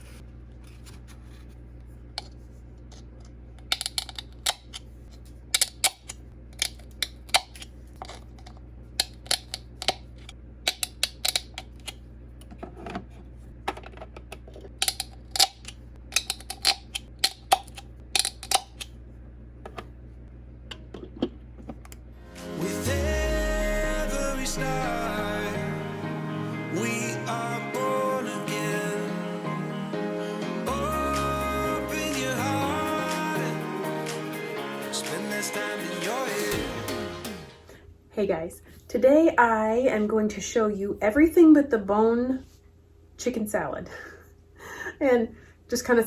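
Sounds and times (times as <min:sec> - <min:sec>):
steady low hum: 0:00.0 - 0:34.5.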